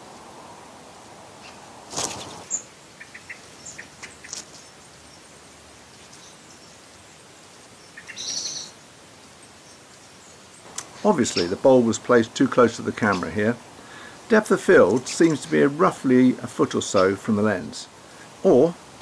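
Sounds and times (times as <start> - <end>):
steady hiss: 0.0 - 19.0
bird chirps and tweets: 1.4 - 11.6
brief rustle: 4.0 - 4.7
loud bird call: 10.8 - 11.9.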